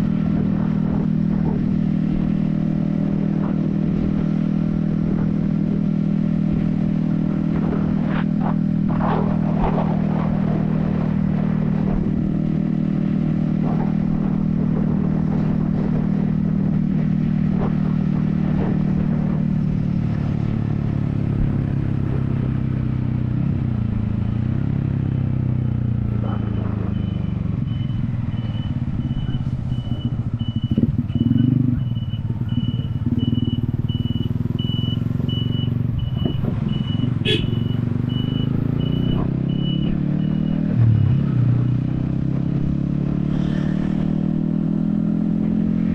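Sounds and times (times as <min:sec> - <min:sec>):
motorcycle engine running: 0:00.0 - 0:45.9
high electronic beep: 0:25.6 - 0:41.4.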